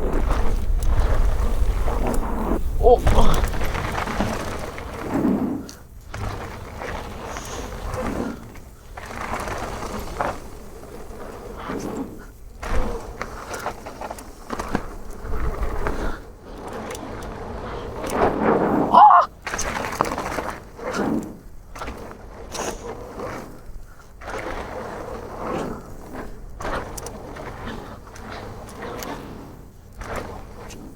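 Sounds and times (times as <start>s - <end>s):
wind on microphone: 0.0s - 8.6s
bike knocking and rattling: 0.0s - 29.1s
bike tyres on dirt trail: 0.0s - 30.9s
pitched squeal or shout: 18.9s - 19.3s.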